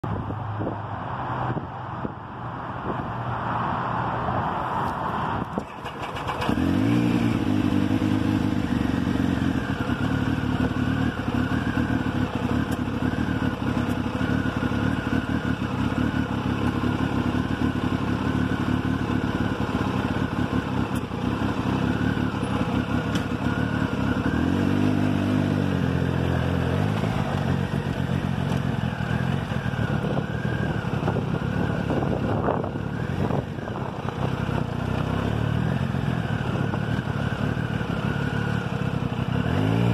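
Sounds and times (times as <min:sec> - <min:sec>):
wind noise: 0:00.0 - 0:06.6, 0:29.8 - 0:34.8
road noise: 0:00.0 - 0:39.9
motorcycle engine running: 0:05.5 - 0:39.9.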